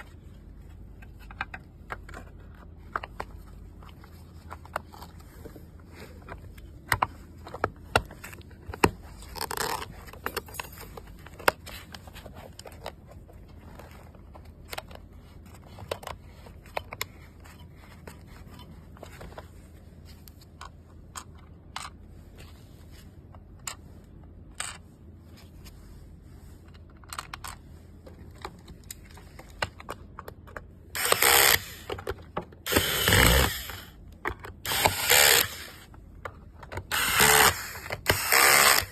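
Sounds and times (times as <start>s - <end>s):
small parts clicking and scraping: 0.7s - 22.6s, 23.2s - 25.8s, 26.6s - 38.9s
rasping rustling bursts: 31.0s - 31.9s, 36.9s - 38.9s.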